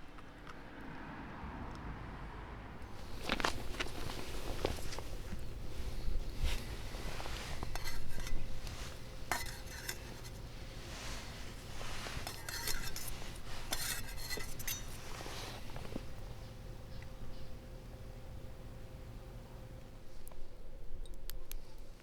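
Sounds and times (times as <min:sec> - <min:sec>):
chopsticks clinking against a bowl: 0:02.9 - 0:16.2.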